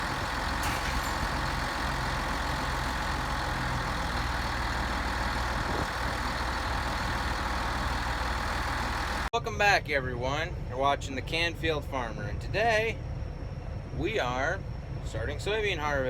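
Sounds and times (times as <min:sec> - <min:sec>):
heavy diesel engine running: 0:00.0 - 0:09.3.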